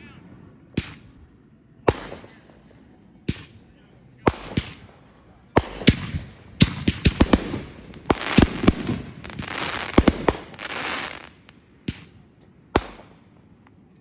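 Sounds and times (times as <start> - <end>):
fireworks bangs: 1.8 - 13.2
fireworks crackling fizz: 5.6 - 12.1.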